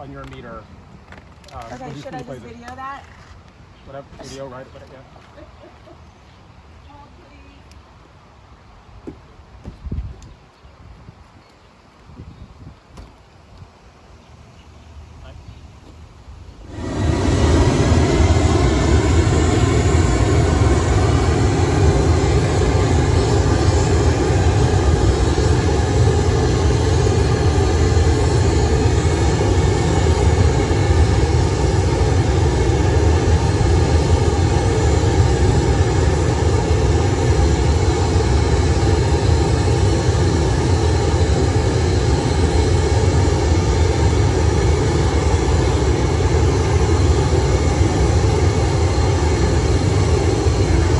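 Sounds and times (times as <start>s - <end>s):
pink noise hiss over loudspeaker: 3.8s - 9.8s.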